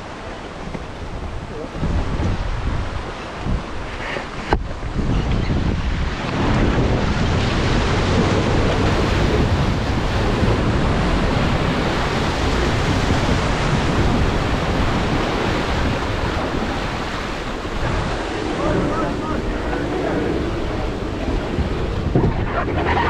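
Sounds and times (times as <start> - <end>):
water rushing and churning: 0.0 - 23.0
low rumble: 6.3 - 23.0.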